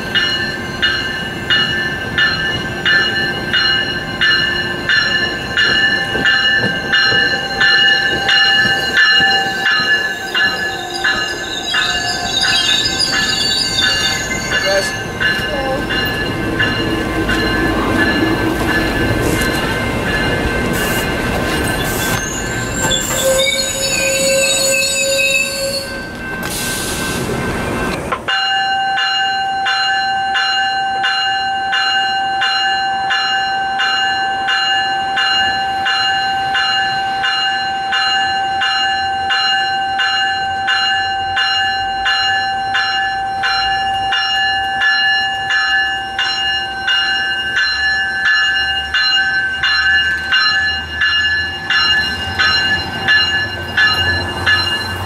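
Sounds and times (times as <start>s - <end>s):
train rumbling: 0.0s - 30.5s, 33.1s - 55.0s
grade-crossing bell ringing: 0.0s - 55.0s
wheel squeals: 6.7s - 19.7s, 20.8s - 26.7s.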